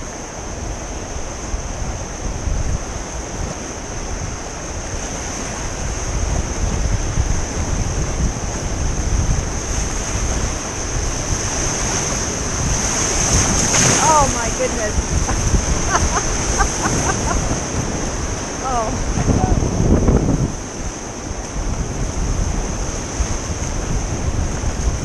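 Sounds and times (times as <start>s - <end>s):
river rapid rushing: 0.0s - 25.0s
wind buffeting microphone: 0.0s - 25.0s.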